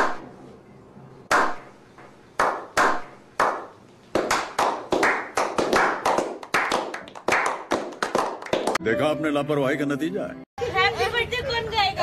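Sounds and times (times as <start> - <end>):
men clapping: 2.4 - 8.8.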